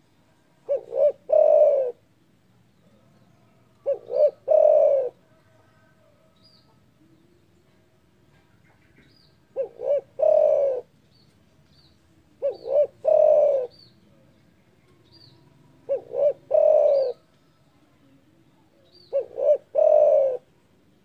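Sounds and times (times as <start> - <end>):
dove cooing: 0.6 - 2.1, 3.8 - 5.9, 8.7 - 10.9, 12.4 - 13.9, 15.2 - 17.3, 18.8 - 20.5.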